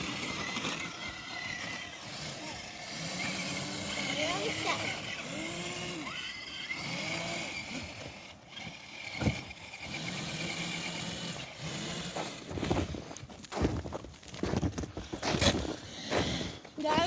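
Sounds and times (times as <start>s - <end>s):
electric motor and gears whining: 0.0s - 17.0s.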